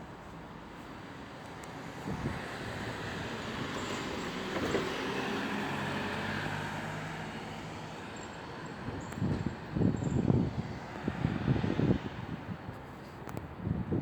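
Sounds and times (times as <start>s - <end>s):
passing vehicle engine hum: 1.8s - 12.6s.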